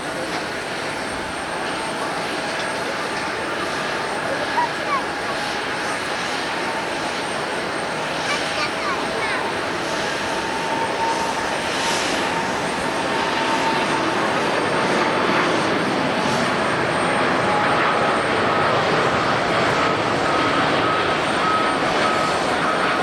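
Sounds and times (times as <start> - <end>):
jet engines running: 0.0 - 23.0
thin engine whine: 0.0 - 23.0.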